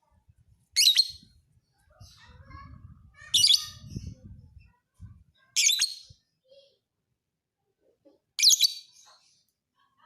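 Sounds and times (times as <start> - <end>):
soft bird chirps: 0.8 - 2.4.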